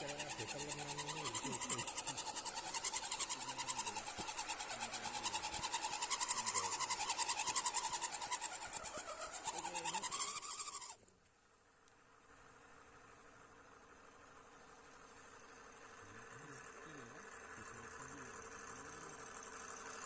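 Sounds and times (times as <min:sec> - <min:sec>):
toy car motor whining: 0:00.0 - 0:11.0.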